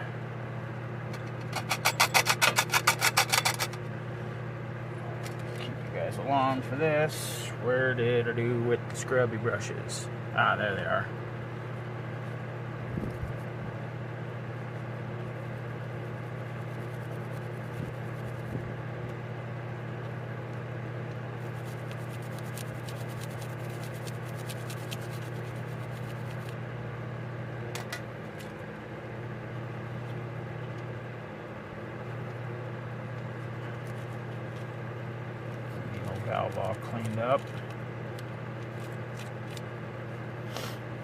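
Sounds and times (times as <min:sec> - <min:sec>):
low mechanical hum: 0:00.0 - 0:41.0
brush scratching on metal parts: 0:01.5 - 0:03.7, 0:15.4 - 0:18.6, 0:21.4 - 0:26.5.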